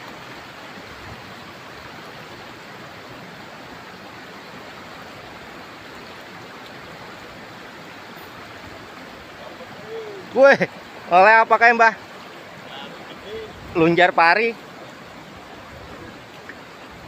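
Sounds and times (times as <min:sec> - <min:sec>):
river rushing over stones: 0:00.0 - 0:17.0.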